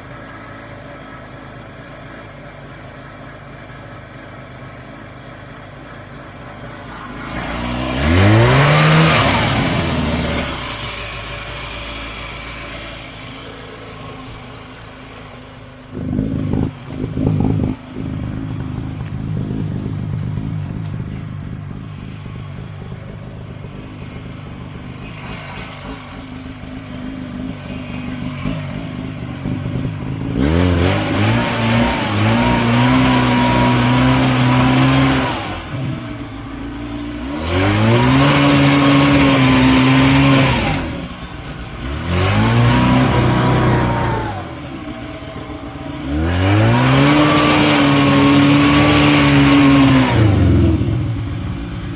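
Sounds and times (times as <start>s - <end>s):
snowmobile engine revving: 6.4s - 12.7s, 25.0s - 51.9s.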